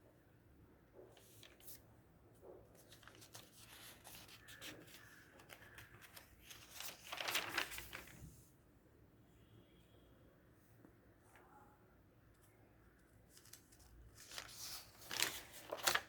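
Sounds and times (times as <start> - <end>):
rustling and crinkling: 2.4 - 8.4, 13.3 - 16.0.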